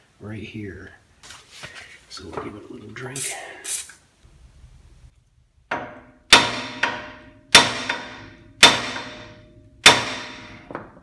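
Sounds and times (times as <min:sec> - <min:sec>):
hammer striking steel: 0:05.7 - 0:10.8.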